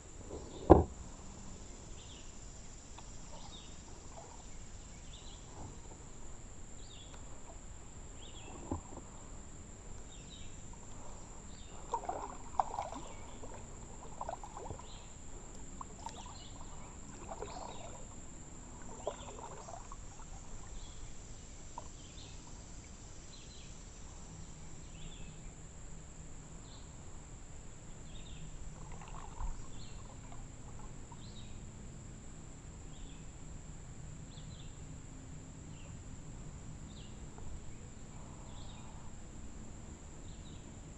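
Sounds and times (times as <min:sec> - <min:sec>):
paddle strokes splashing in water: 0:03.0 - 0:06.3, 0:10.4 - 0:22.6, 0:28.7 - 0:31.3.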